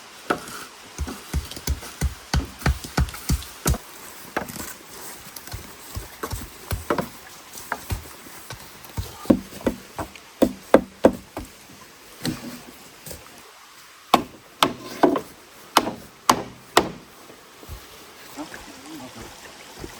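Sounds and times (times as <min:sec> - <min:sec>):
tool chopping wood: 0:00.3 - 0:04.7, 0:05.4 - 0:11.6, 0:14.1 - 0:17.1.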